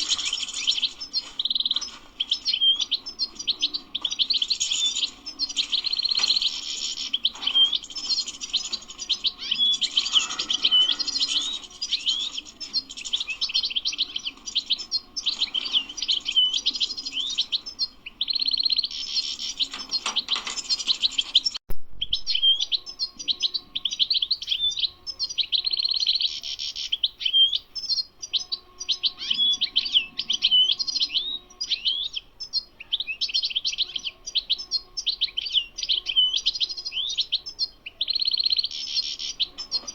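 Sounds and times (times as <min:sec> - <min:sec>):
goldfinch singing: 0:00.0 - 0:39.9.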